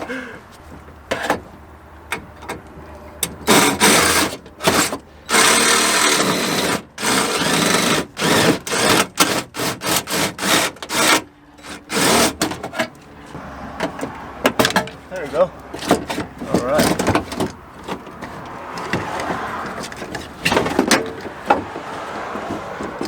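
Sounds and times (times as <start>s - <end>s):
power drill drilling rivets: 3.2s - 13.0s.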